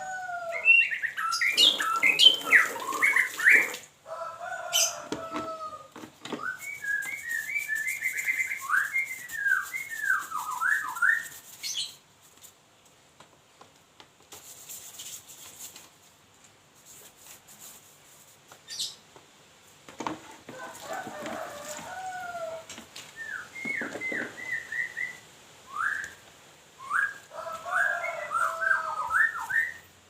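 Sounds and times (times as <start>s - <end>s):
bird whistled song: 0.5s - 3.8s, 6.4s - 12.0s, 23.2s - 26.2s, 26.8s - 29.9s.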